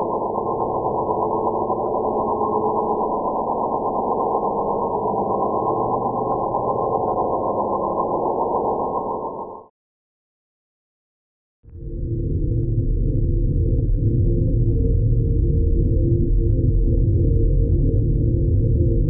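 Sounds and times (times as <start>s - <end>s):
muffled synthetic drone: 0.0s - 9.7s.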